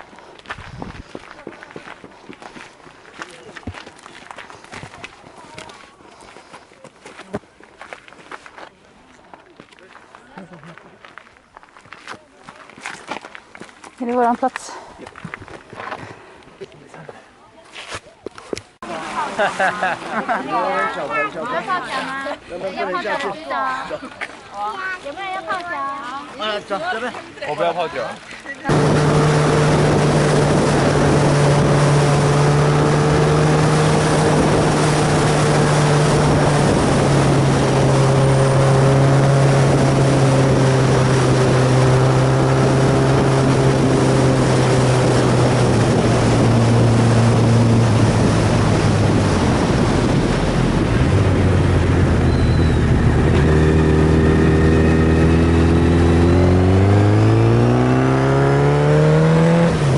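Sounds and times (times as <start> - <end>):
wind rush: 0.6 - 1.1, 28.7 - 58.5
motorcycle engine running: 28.7 - 59.9.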